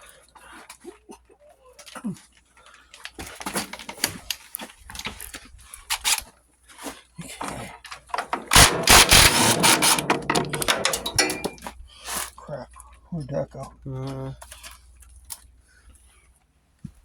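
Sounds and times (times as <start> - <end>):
tool clanks and knocks: 8.1 - 11.7
impact wrench hammering: 8.3 - 11.7.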